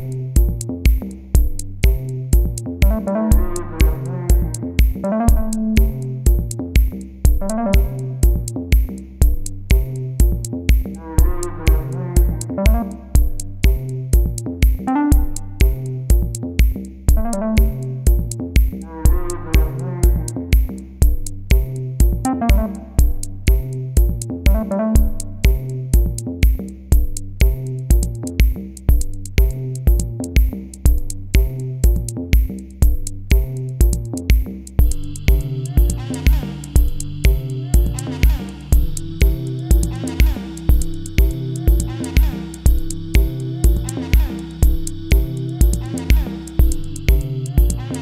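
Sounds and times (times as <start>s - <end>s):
drum machine beat: 0.0s - 48.0s
electronic music: 1.8s - 16.4s, 17.1s - 26.2s, 33.3s - 48.0s
synthesizer melody: 2.8s - 6.2s, 7.4s - 8.2s, 11.1s - 13.2s, 14.9s - 15.6s, 17.2s - 18.0s, 22.3s - 23.2s, 24.5s - 25.4s, 34.8s - 48.0s.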